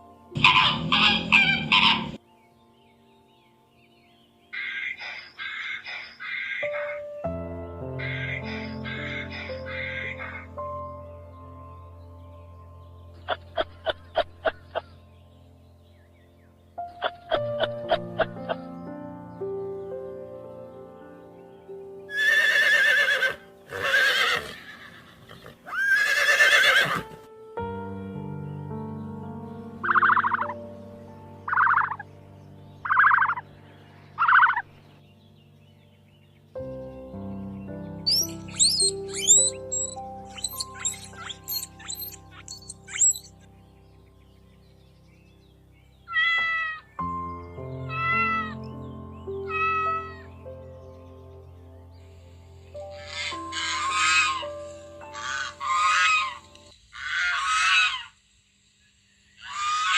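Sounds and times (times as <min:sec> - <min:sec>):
soft background music: 0:00.0 - 0:56.8
horse whinnying: 0:22.1 - 0:27.1, 0:38.1 - 0:43.3
sharp high chirps: 0:38.1 - 0:43.4
cat meowing: 0:47.9 - 0:48.6, 0:49.5 - 0:50.2.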